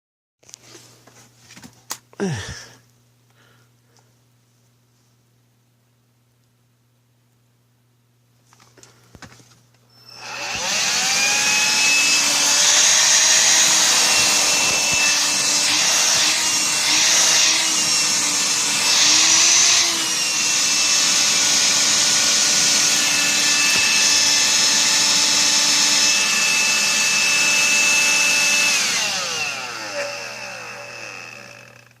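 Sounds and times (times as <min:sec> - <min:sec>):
cordless vacuum motor whine: 0:09.9 - 0:32.0.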